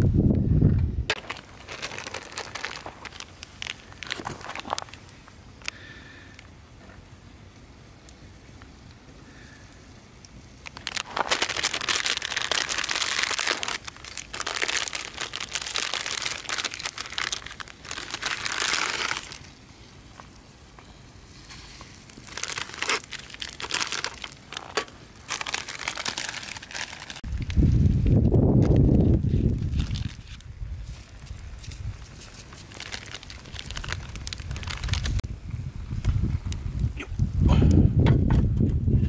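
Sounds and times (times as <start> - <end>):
packaging crinkling: 1.1 - 5.2, 10.6 - 19.5, 21.4 - 35.2.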